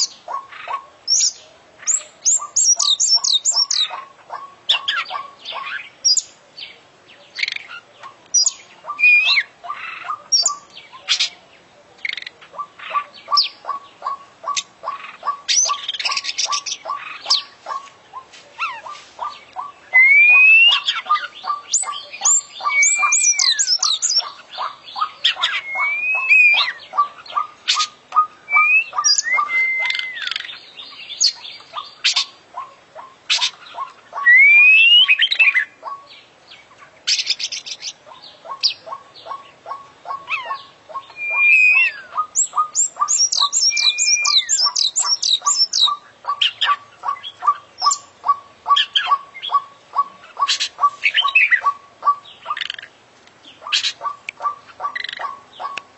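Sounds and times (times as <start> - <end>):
bird singing whistled notes: 1.1 - 4.0, 7.3 - 11.3, 19.5 - 32.3, 33.4 - 36.1, 37.1 - 52.7.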